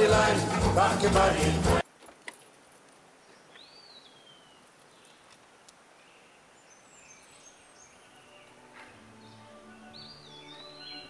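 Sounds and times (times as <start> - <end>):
faint outdoor ambience: 0.0 - 11.0.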